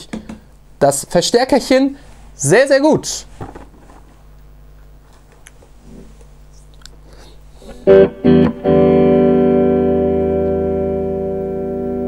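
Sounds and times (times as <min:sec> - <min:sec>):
amp hum: 0:00.0 - 0:12.0
electric guitar chords strummed: 0:07.7 - 0:12.0.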